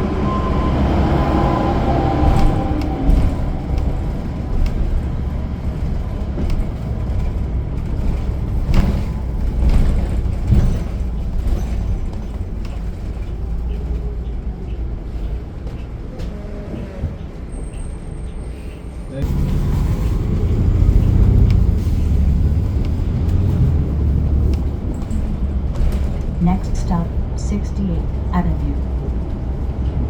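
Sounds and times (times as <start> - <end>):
bus engine and road rumble: 0.0 - 30.0
rattles and knocks: 3.1 - 14.0.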